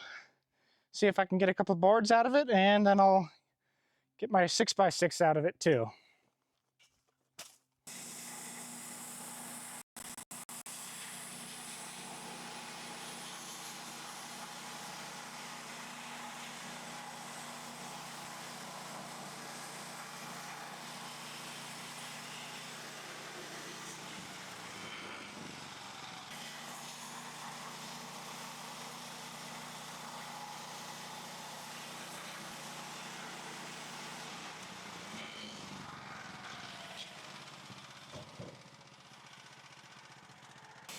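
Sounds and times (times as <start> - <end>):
sawmill engine running: 10.5 - 40.9.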